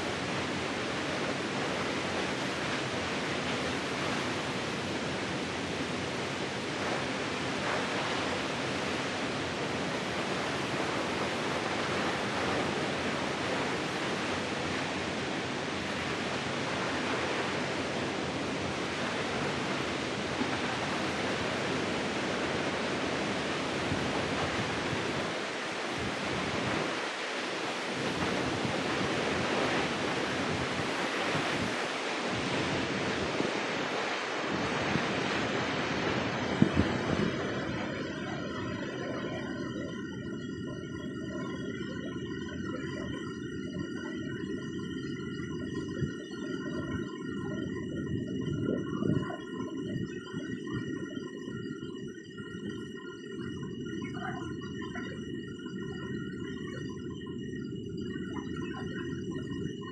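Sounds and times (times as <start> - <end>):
waterfall roaring: 0.0 - 39.6.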